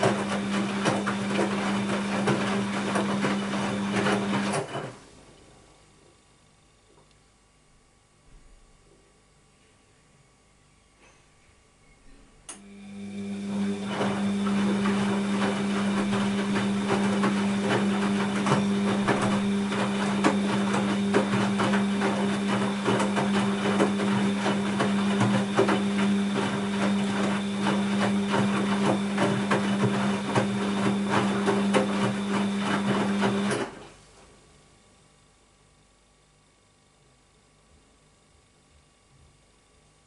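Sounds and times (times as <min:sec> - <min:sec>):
laundry and water clattering in drum: 0:00.0 - 0:05.0, 0:13.6 - 0:34.0
washing machine motor hum: 0:00.0 - 0:05.8, 0:11.6 - 0:34.8.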